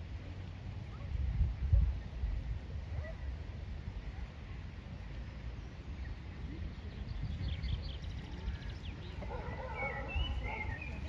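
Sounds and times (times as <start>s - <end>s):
birds chirping and calling: 7.2s - 11.0s.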